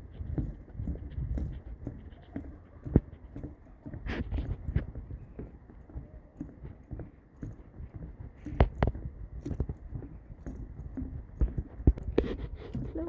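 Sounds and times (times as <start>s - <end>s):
footsteps walking briskly: 0.0s - 13.0s.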